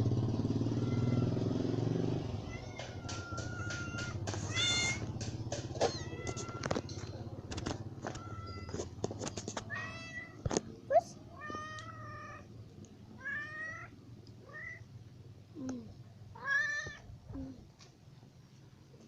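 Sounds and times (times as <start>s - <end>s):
kitten meowing: 0.8s - 1.4s, 2.4s - 5.0s, 5.8s - 6.7s.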